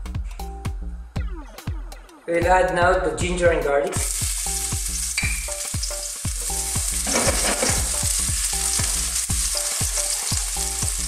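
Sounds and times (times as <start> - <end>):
garlic sizzling in oil: 4.0 - 11.0.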